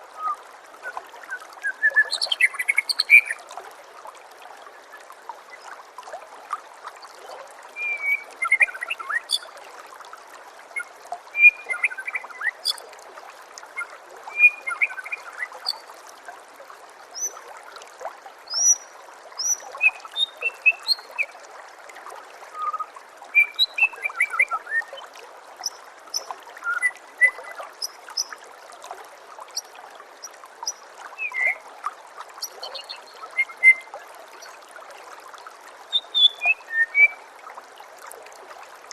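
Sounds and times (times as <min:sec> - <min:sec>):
running water trickling: 0:00.0 - 0:38.9
bird chirps and whistles: 0:01.6 - 0:03.4, 0:07.8 - 0:09.4, 0:11.4 - 0:12.5, 0:13.8 - 0:15.2, 0:22.6 - 0:24.9, 0:31.2 - 0:31.6, 0:32.6 - 0:33.9, 0:35.9 - 0:37.2.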